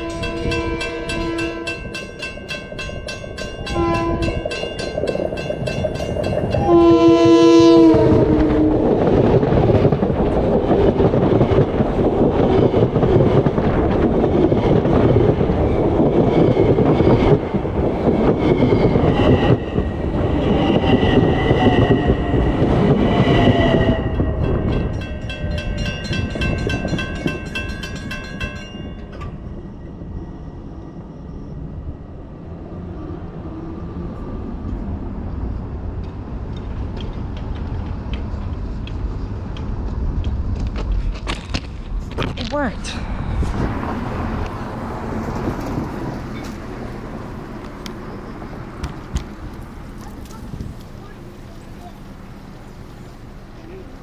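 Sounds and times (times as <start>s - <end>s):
train horn blast: 0.0s - 2.2s, 3.6s - 4.7s, 6.5s - 9.0s
train wheels rumbling and clattering: 0.0s - 54.0s.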